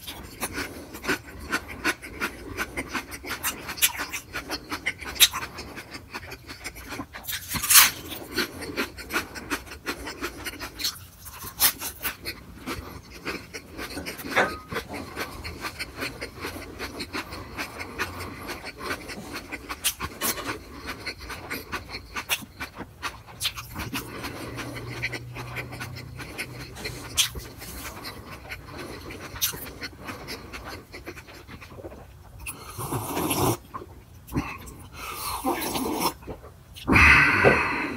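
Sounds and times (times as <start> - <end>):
chewing with wet smacking: 0.0 - 36.9.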